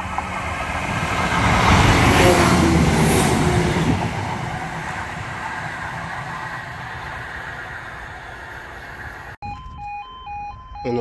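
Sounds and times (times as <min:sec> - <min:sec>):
train rumbling away: 0:00.0 - 0:09.4
level crossing alarm: 0:09.4 - 0:11.0.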